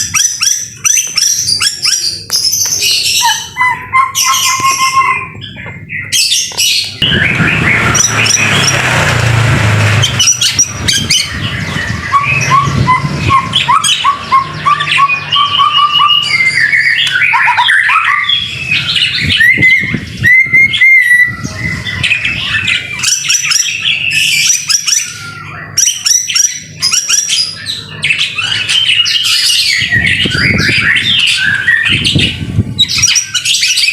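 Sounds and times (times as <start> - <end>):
bird singing whistled phrases: 0.0 - 8.8, 10.1 - 33.9
harsh noise: 6.9 - 17.3.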